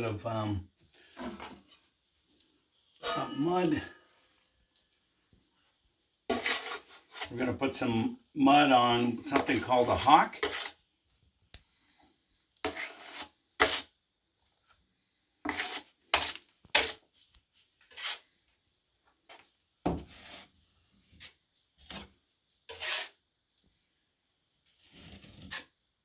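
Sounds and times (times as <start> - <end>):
trowel scraping joint compound: 6.3 - 8.0, 9.2 - 10.8, 12.6 - 13.9, 15.4 - 17.1, 17.9 - 18.2, 20.1 - 23.2, 24.8 - 25.8.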